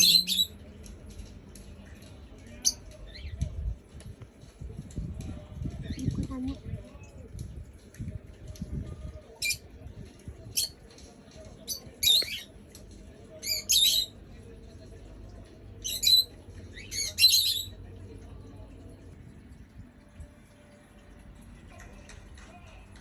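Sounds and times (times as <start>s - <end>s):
bird chirping and squawking: 0.0s - 0.5s, 13.5s - 14.1s, 15.8s - 17.7s.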